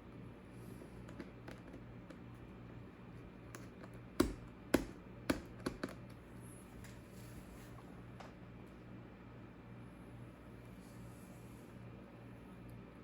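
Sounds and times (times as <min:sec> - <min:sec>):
low steady hum: 0:00.0 - 0:13.0
laptop clicks and taps: 0:03.5 - 0:06.0.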